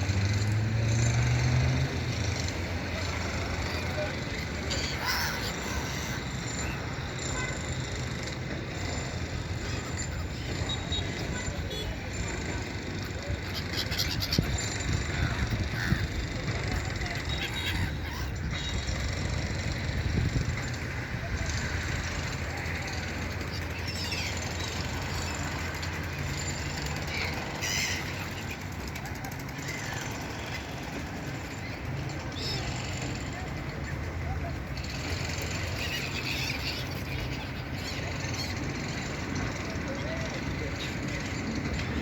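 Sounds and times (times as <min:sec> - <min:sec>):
faint seagull call: 0:03.3 - 0:07.7, 0:13.0 - 0:18.8, 0:27.0 - 0:30.9
gull calls: 0:03.5 - 0:06.4, 0:13.4 - 0:16.1.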